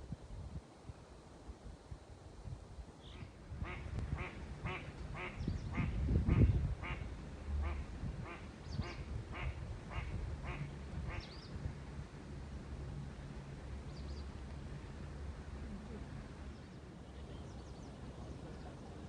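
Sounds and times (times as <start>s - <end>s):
duck quacking: 3.1s - 7.0s.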